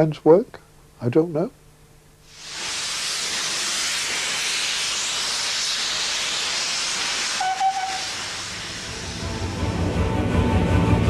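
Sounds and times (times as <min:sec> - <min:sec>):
steam locomotive hissing: 0:02.3 - 0:11.0
brief steady tone: 0:07.4 - 0:08.1.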